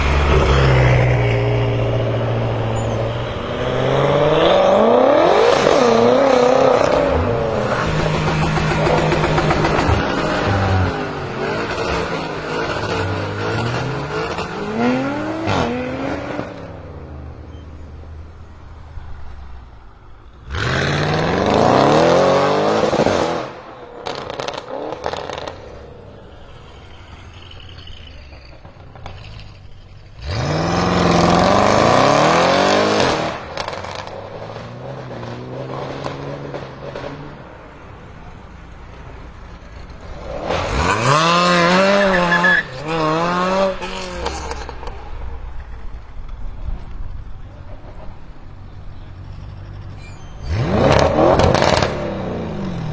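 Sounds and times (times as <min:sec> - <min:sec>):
car engine revving hard: 0:00.0 - 0:16.7, 0:20.5 - 0:23.5, 0:30.2 - 0:36.5, 0:40.2 - 0:44.6, 0:50.5 - 0:52.9.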